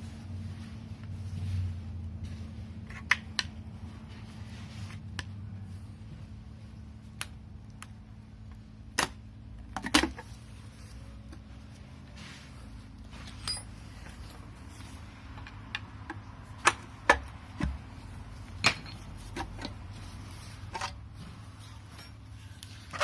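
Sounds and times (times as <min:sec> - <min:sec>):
low steady hum: 0:00.0 - 0:23.0
hand tools clicking and clinking: 0:13.2 - 0:14.4.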